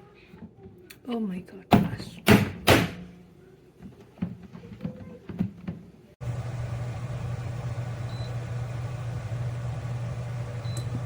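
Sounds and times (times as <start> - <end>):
low machine hum: 6.2 - 11.0.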